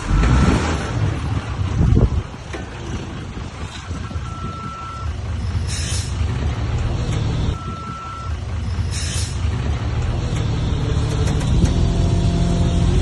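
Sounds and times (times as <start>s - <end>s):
diesel machinery running: 0.0s - 13.0s
reversing alarm beep: 4.2s - 5.1s, 7.6s - 8.4s.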